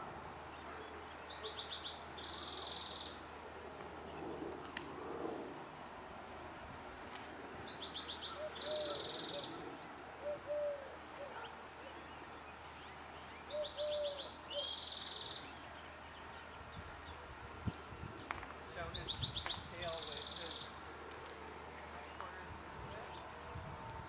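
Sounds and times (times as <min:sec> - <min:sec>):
songbird singing with buzzy trill: 0:00.5 - 0:03.4, 0:07.4 - 0:20.8.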